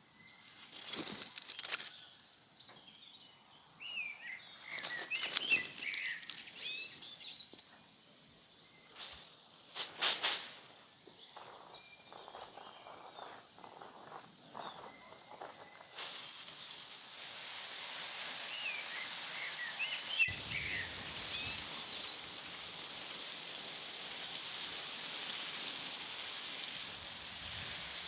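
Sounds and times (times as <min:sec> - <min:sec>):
small birds chirping: 0:00.0 - 0:28.0
brief scuffing noises: 0:09.8 - 0:10.6.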